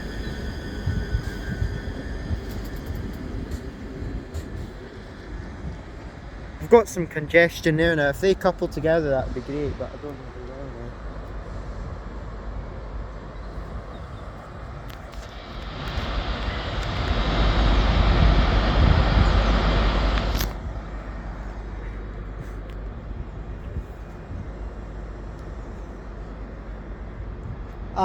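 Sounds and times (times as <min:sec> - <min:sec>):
station hum: 0:00.0 - 0:07.0, 0:14.6 - 0:27.4
train rushing and rumbling: 0:00.0 - 0:28.0.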